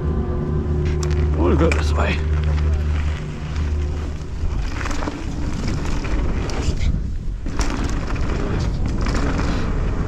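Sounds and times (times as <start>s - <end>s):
wind buffeting microphone: 0.0s - 10.0s
bike tyre noise: 0.7s - 10.0s
bike frame and chain rattle: 0.8s - 10.0s.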